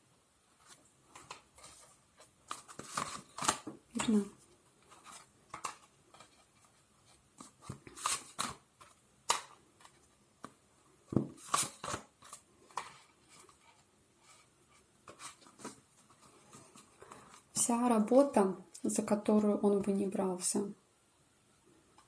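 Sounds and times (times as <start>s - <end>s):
cards tapping and rustling: 0.7s - 13.5s.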